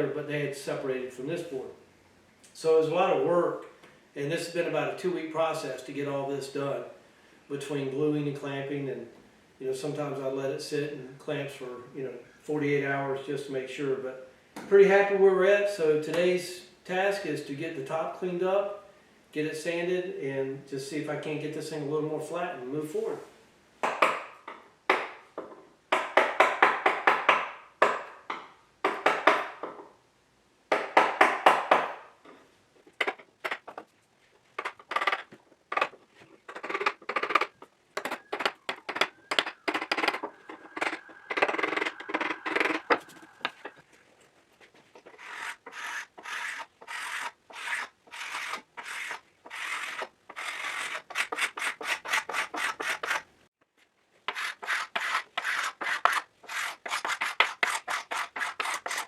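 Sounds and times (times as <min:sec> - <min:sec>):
hand rubbing wooden workbench: 0:33.0 - 0:53.2.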